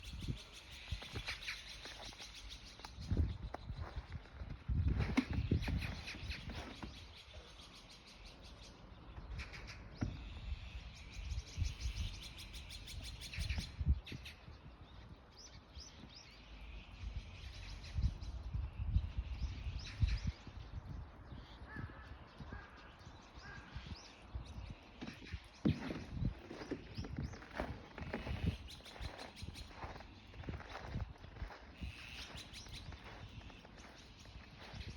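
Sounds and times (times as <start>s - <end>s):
magpies chattering: 21.6s - 34.9s.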